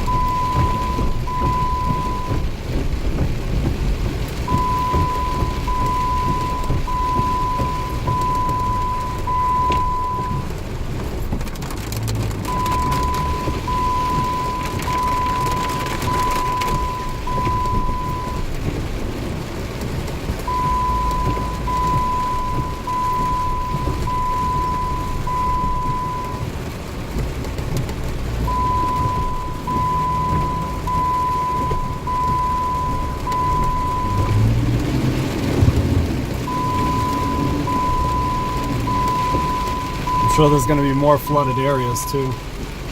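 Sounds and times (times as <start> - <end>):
electronic warning beeps: 0.0 - 2.4, 4.5 - 10.5, 12.5 - 18.4, 20.5 - 26.5, 28.5 - 34.4, 36.5 - 42.4
heavy rain: 0.0 - 42.9
low vehicle rumble: 0.0 - 42.9.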